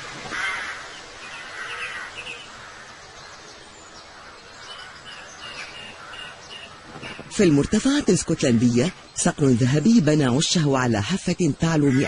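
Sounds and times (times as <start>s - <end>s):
faint hiss of wind: 0.0s - 12.0s
small birds chirping: 0.3s - 12.0s.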